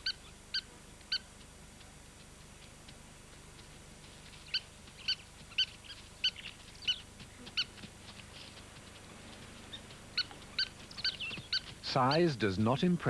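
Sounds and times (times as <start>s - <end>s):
plover alarm calls: 4.5s - 7.8s, 9.6s - 13.0s.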